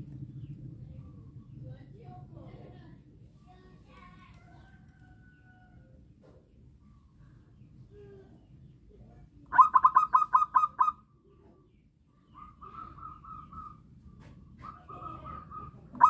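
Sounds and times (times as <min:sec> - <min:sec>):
dove cooing: 0:09.5 - 0:11.0, 0:12.4 - 0:16.0.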